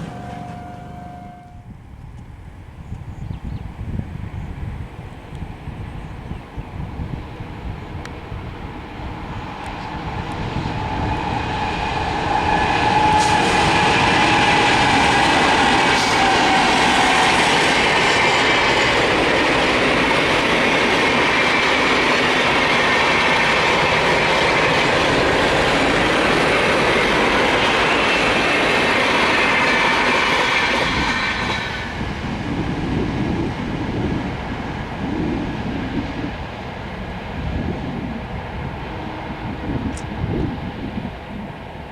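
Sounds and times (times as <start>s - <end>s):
high squeal of wheel on rail: 0.0s - 1.8s, 9.7s - 18.6s
train wheels clattering over rails: 9.7s - 32.4s.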